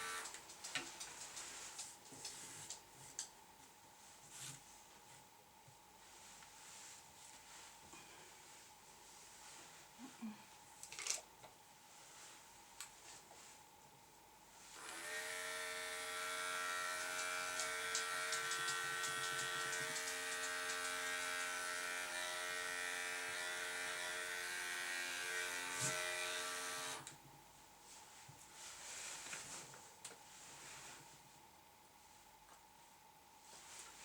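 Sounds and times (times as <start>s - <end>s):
electric clippers humming: 0.0s - 0.4s, 14.8s - 27.1s.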